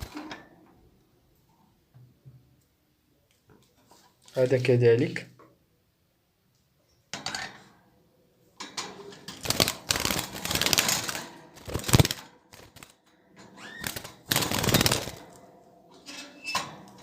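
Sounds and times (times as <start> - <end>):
clattering in a birdcage: 7.1 - 7.8, 8.6 - 17.0.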